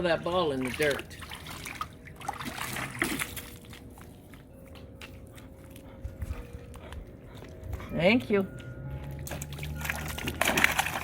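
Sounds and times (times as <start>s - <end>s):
small splashes: 0.0s - 3.9s, 9.2s - 11.0s
water trickling and sloshing: 0.0s - 11.0s.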